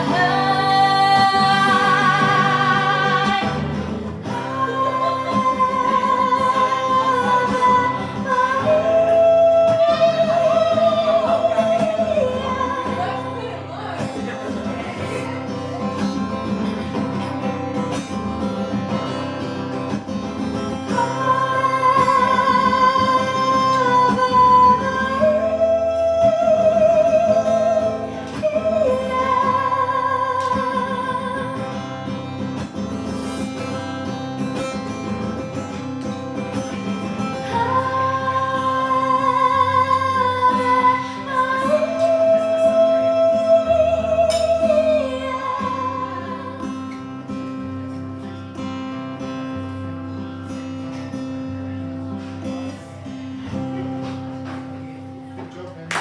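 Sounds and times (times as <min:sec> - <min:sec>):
person singing long vibrato notes: 0:00.0 - 0:13.6
acoustic guitar: 0:00.0 - 0:56.0.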